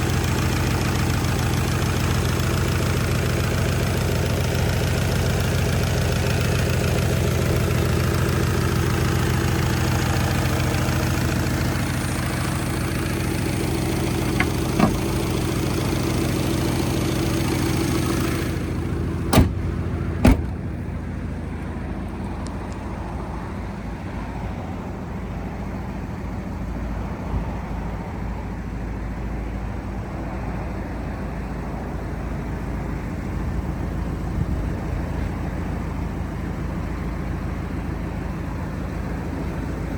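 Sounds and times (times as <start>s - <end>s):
car engine idling: 0.0s - 39.9s
sharp knocks: 14.2s - 15.1s, 19.3s - 20.6s.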